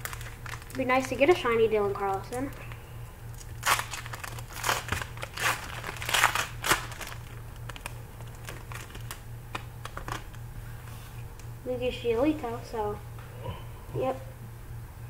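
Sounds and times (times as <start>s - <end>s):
foil wrapper crinkling: 0.0s - 10.5s.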